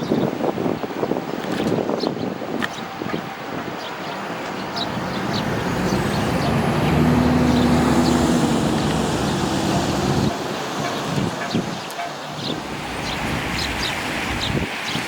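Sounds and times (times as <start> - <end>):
sparrows chirping: 1.5 - 15.0
vehicle engine passing by: 4.2 - 14.6.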